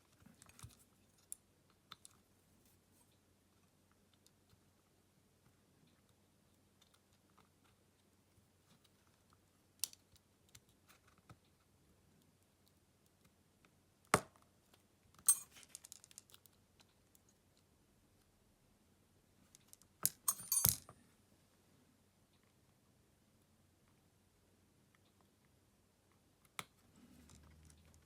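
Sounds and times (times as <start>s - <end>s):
small tools clicking and tapping: 15.3s - 17.3s, 19.6s - 20.9s
small clicks and rattles: 15.3s - 17.4s.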